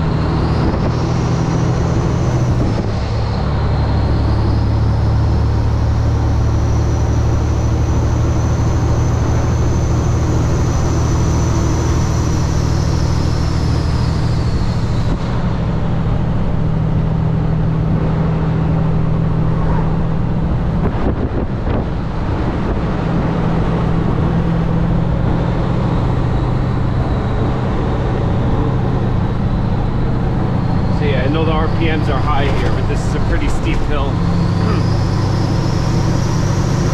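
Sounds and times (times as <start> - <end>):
diesel truck engine pulling hard: 0.0 - 36.9
high whine: 17.8 - 36.9.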